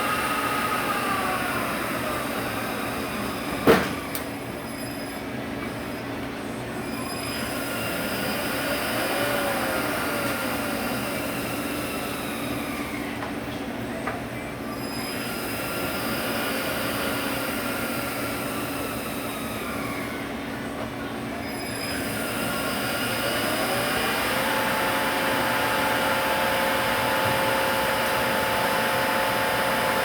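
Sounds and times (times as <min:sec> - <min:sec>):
truck transmission gears whining: 0:00.0 - 0:06.1, 0:14.7 - 0:30.0.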